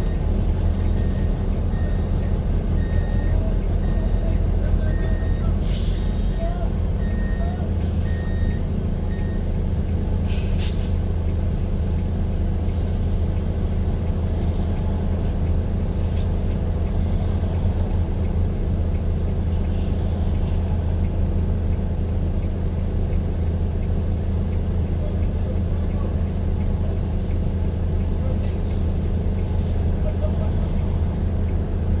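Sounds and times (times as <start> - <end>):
heavy vehicle engine rumbling: 0.0 - 32.0.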